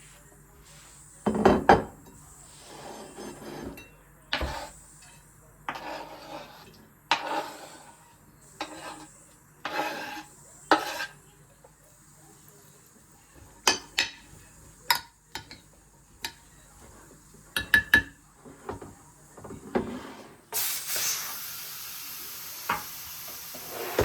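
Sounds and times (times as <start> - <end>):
dishes and utensils clinking: 1.2 - 7.8, 13.4 - 20.3.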